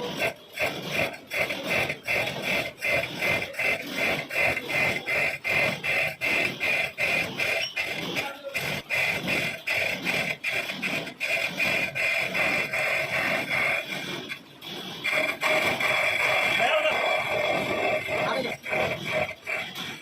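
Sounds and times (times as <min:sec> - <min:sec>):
lathe scraping thread rhythmically: 0:00.0 - 0:20.0.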